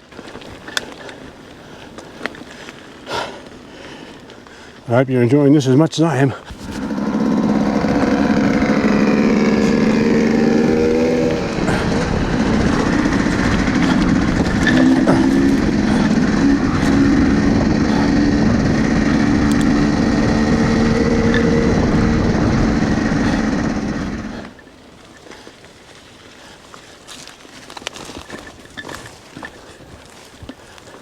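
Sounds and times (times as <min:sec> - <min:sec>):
rush of wind and tyres: 0:00.0 - 0:31.0
electric bike motor whining: 0:06.5 - 0:24.7.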